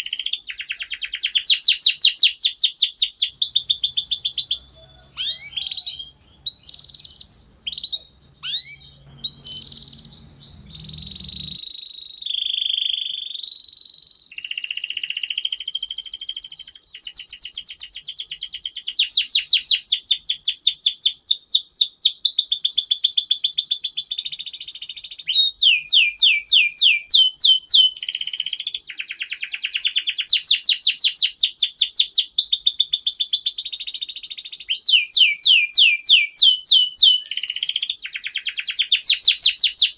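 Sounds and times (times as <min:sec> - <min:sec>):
canary singing trills: 0:00.0 - 0:39.9
low hum: 0:08.1 - 0:11.6.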